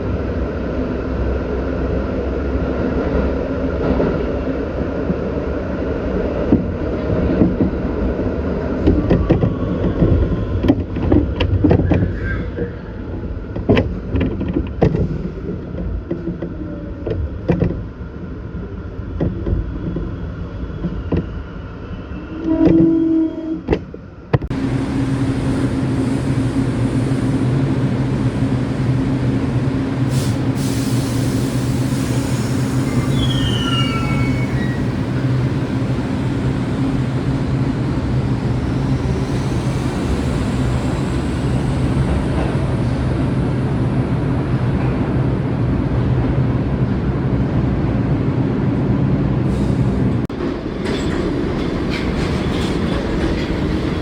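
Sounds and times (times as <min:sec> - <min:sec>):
train hum with low tone: 0:00.0 - 0:54.0
train wheels rumbling: 0:24.4 - 0:54.0
faint high squeals: 0:32.1 - 0:35.5
wheels clacking over rail joints: 0:50.3 - 0:54.0.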